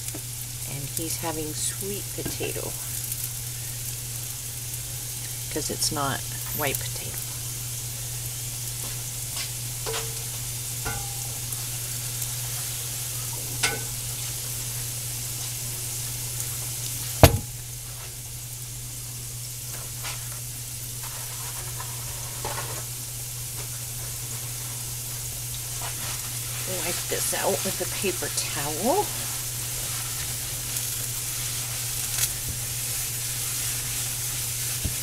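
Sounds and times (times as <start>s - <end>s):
constant low hum: 0.0s - 35.0s
food sizzling in oil: 0.0s - 35.0s
sharp knock: 17.2s - 17.5s.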